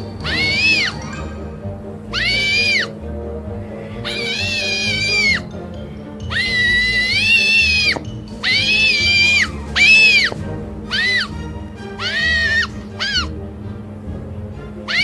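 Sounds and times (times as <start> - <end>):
background music: 0.0 - 15.0
owl whining calls: 0.2 - 1.4, 2.1 - 3.0, 3.8 - 5.6, 6.2 - 13.3.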